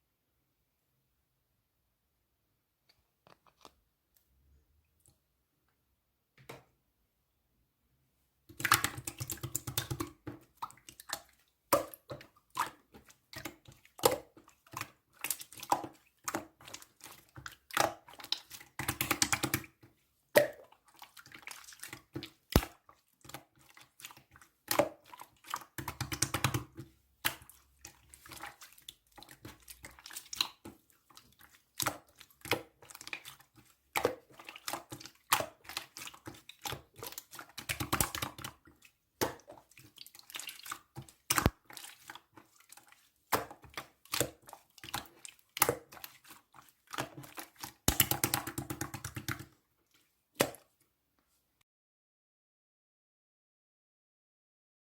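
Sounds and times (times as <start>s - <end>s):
wet slime squishes: 8.5s - 50.9s.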